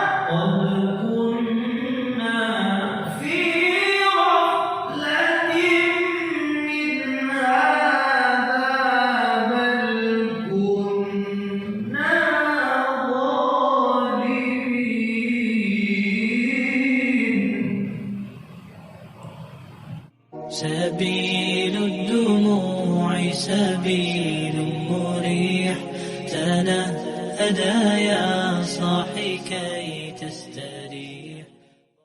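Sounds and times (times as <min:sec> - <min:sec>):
person singing ornamented notes: 0:20.2 - 0:31.5.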